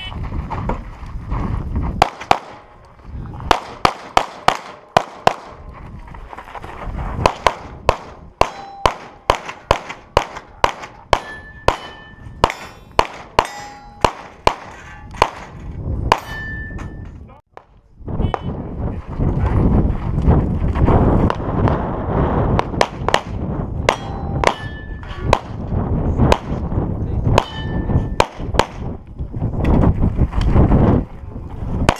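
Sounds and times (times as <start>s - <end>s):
rapid pistol fire: 3.5s - 5.6s, 7.3s - 15.5s, 28.2s - 28.9s
steel plates clanging: 11.2s - 15.2s.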